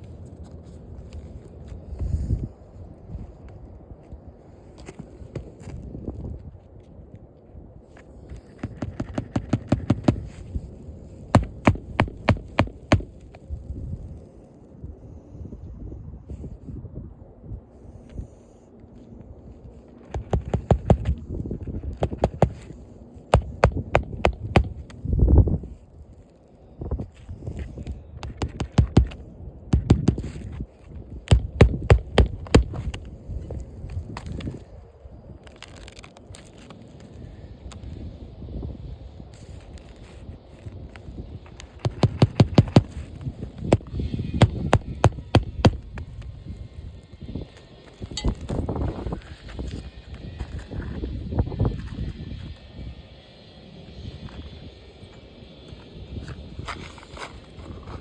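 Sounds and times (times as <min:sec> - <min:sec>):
hammer striking roofing nails: 0:08.5 - 0:10.4, 0:11.4 - 0:13.2, 0:20.1 - 0:21.2, 0:22.0 - 0:22.7, 0:23.4 - 0:24.9, 0:28.2 - 0:30.5, 0:31.3 - 0:33.0, 0:41.8 - 0:45.8.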